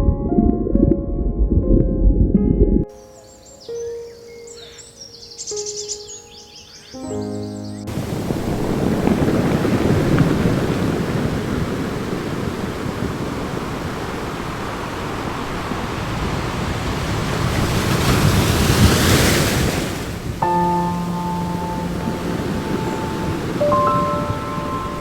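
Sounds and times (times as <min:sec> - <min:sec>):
ocean waves rushing: 0:07.9 - 0:25.0.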